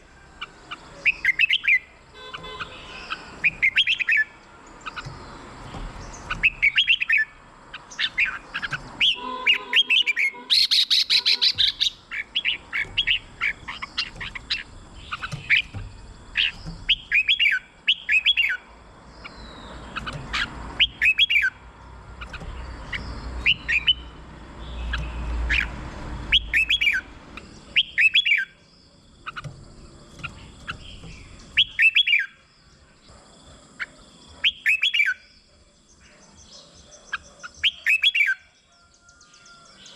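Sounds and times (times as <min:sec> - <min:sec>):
bird harsh chatter: 0:00.5 - 0:25.7
bird whistled phrases: 0:09.0 - 0:13.2, 0:31.6 - 0:32.4, 0:37.6 - 0:38.4.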